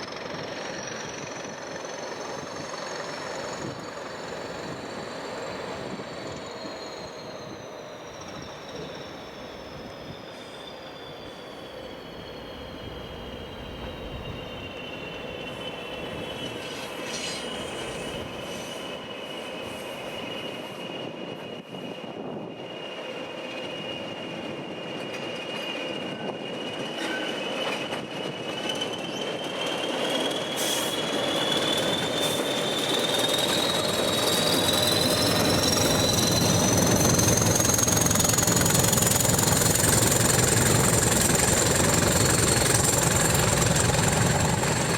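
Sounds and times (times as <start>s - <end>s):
train wheels squealing on rails: 0.0s - 44.9s
deep train rumble: 11.9s - 22.7s, 30.9s - 44.9s.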